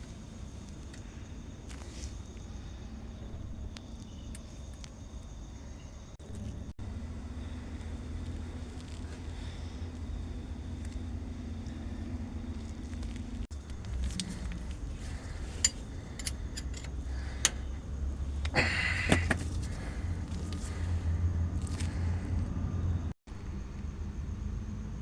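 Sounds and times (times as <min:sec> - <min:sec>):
vehicle engine running: 0:06.2 - 0:25.0
jangling clatter: 0:14.0 - 0:17.6
metallic clinks: 0:14.0 - 0:17.8.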